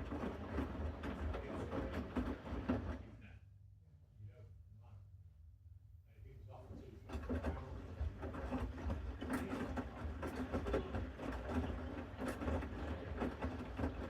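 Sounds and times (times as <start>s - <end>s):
washing machine motor rumble: 0.0s - 3.1s, 6.9s - 14.0s.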